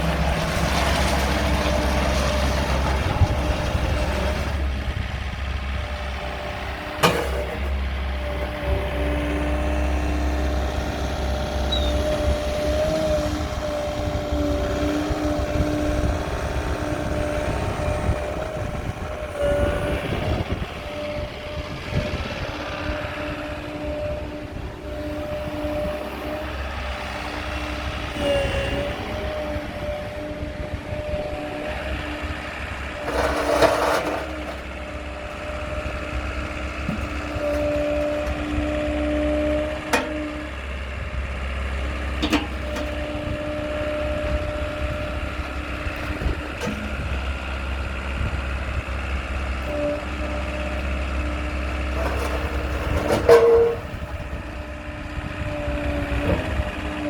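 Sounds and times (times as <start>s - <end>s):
diesel excavator engine running: 0.0s - 57.0s.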